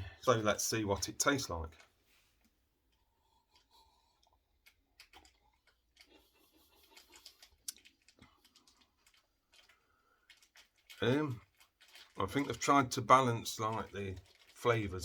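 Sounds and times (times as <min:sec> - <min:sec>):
mouth sounds sipping: 0:03.0 - 0:08.4.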